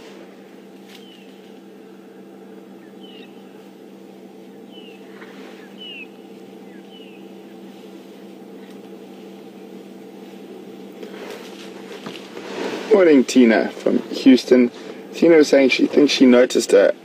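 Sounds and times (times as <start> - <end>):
low mechanical hum: 0.0 - 17.0
bird chirping: 0.9 - 2.0, 2.6 - 8.8.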